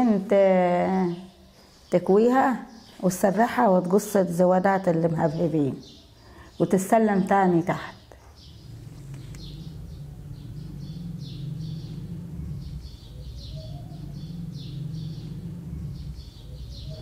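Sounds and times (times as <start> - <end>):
small birds chirping: 0.0 - 17.0
steady low hum: 8.1 - 17.0.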